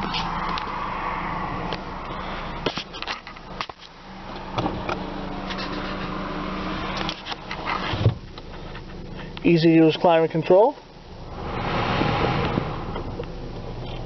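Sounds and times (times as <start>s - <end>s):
car cabin hum: 0.0s - 14.0s
steady tone: 10.9s - 13.8s.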